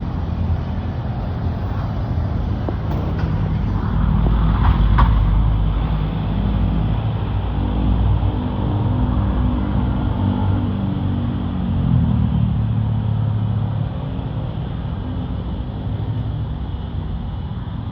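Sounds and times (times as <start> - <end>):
airliner low rumble: 0.0 - 17.9.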